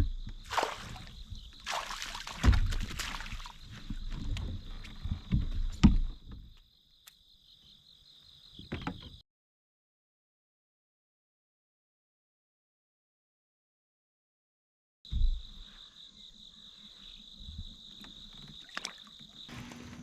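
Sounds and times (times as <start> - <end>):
water splashing: 0.4 - 3.6.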